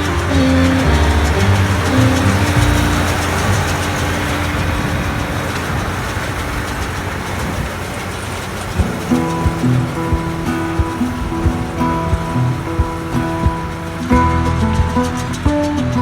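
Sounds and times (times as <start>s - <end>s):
background music: 0.0s - 5.0s, 8.8s - 16.0s
farm machinery running: 0.0s - 16.0s.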